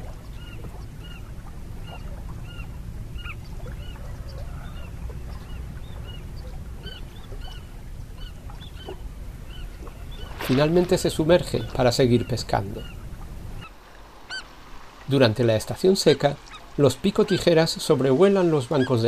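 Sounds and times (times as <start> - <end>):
steady low rumble: 0.0 - 15.0
birds calling: 0.0 - 19.0.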